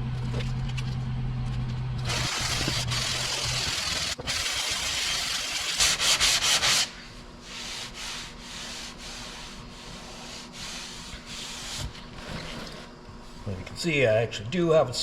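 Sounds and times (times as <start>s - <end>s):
sandpaper rasping on filler: 2.1s - 12.0s.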